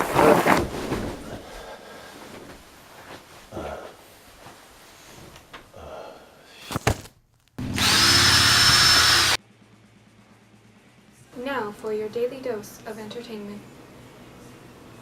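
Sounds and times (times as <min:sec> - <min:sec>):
harsh buzzing with high whine: 0:07.6 - 0:09.4.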